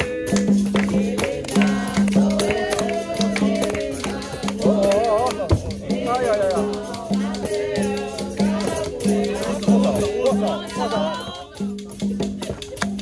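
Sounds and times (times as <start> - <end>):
hand percussion: 0.0 - 13.0
shaken rattle: 0.1 - 13.0
person singing: 6.3 - 11.7.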